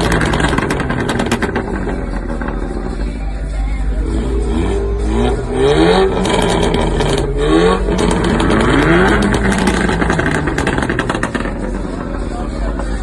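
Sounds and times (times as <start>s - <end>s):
exhaust crackles and pops: 0.0s - 2.6s, 6.0s - 12.2s
car engine accelerating: 0.0s - 13.0s.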